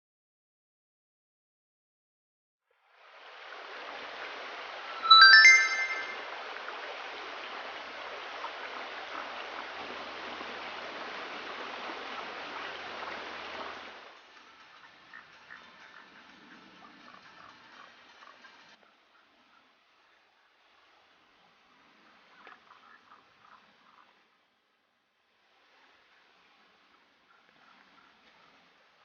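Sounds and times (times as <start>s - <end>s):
small stream rushing: 2.8s - 14.2s
rising bell-like chime: 5.0s - 6.2s.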